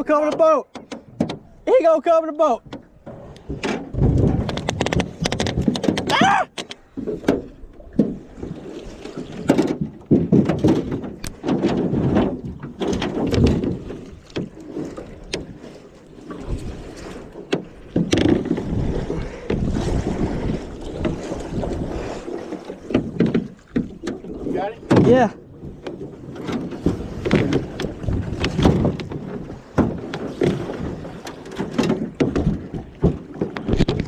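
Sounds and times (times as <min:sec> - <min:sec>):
water splashing: 0:00.0 - 0:34.0
knocks against boat hull: 0:00.3 - 0:01.5, 0:17.5 - 0:18.5, 0:24.9 - 0:30.8, 0:31.6 - 0:34.0
wind on microphone: 0:03.1 - 0:06.3, 0:16.3 - 0:17.3, 0:17.9 - 0:23.2, 0:23.9 - 0:31.2.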